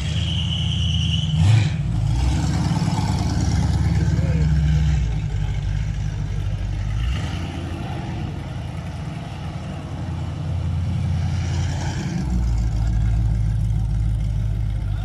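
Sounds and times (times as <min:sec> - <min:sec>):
car engine revving hard: 0:06.9 - 0:08.2.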